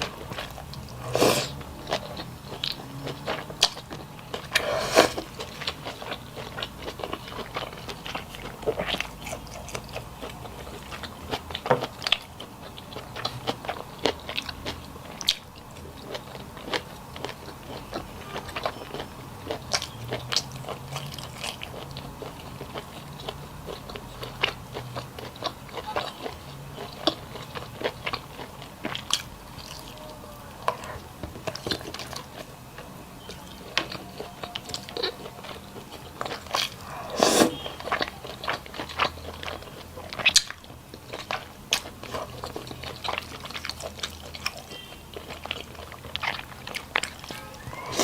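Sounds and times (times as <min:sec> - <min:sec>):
person chewing and crunching: 0:00.0 - 0:48.0.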